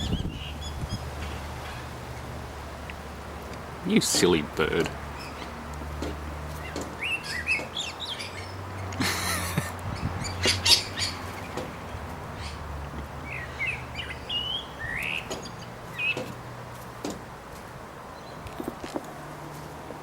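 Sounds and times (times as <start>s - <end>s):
small bird chirping: 0.0s - 1.1s, 13.2s - 16.3s.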